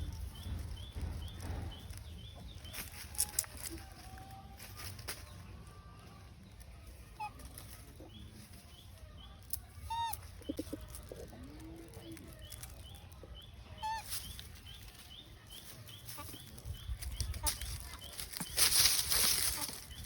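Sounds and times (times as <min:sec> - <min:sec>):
squeaky animal calls: 0:09.8 - 0:10.7, 0:13.8 - 0:14.1.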